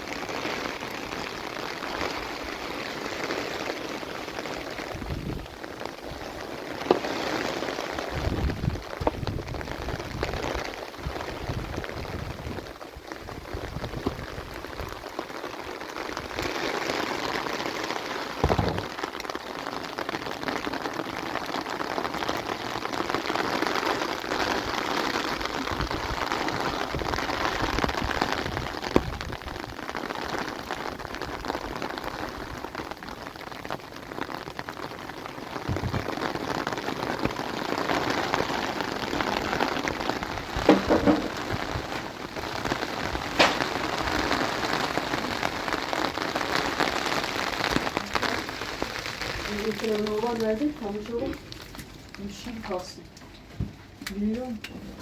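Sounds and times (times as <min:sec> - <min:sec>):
rain pattering on surfaces: 0:00.0 - 0:55.0
sharp knocks: 0:18.4 - 0:18.9, 0:40.7 - 0:41.4
low thumps: 0:18.4 - 0:19.0.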